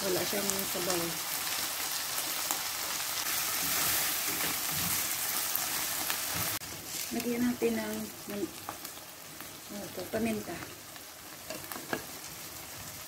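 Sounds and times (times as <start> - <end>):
food sizzling in a frying pan: 0.0 - 13.0
spatula stirring in a pan: 2.2 - 7.9.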